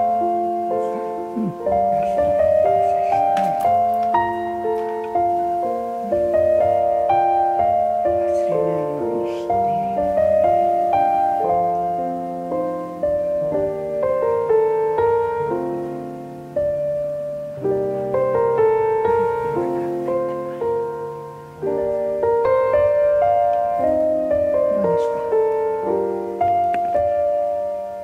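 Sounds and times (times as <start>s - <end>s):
gentle piano melody: 0.0s - 28.0s.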